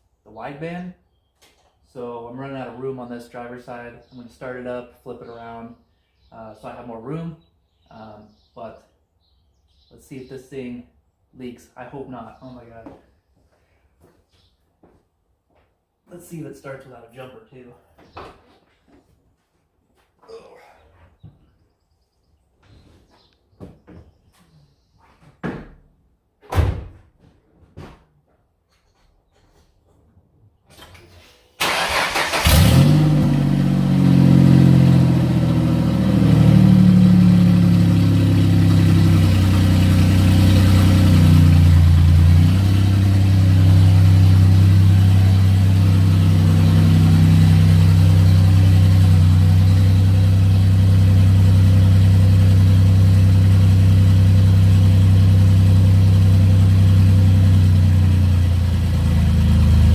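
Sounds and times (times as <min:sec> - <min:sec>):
engine cranking: 0:31.6 - 0:33.0
car engine idling and revving: 0:32.3 - 0:59.9.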